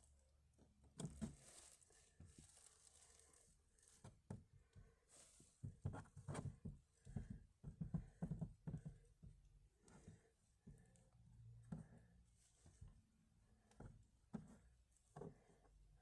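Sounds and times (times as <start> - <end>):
faint rustling: 1.2 - 4.2.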